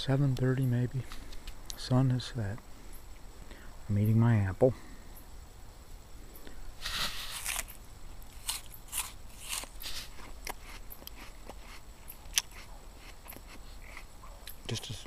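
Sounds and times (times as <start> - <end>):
person chewing crisp apple: 6.8 - 14.6.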